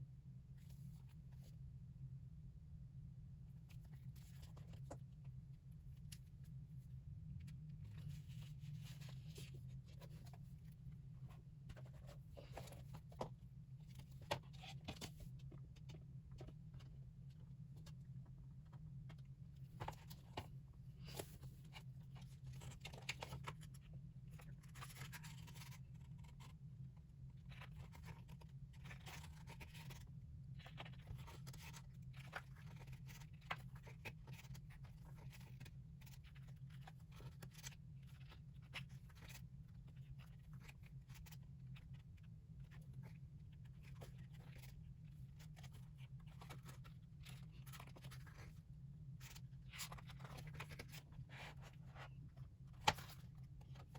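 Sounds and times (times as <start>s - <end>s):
steady low hum: 0.0s - 53.9s
plastic and paper rustling: 49.2s - 53.9s.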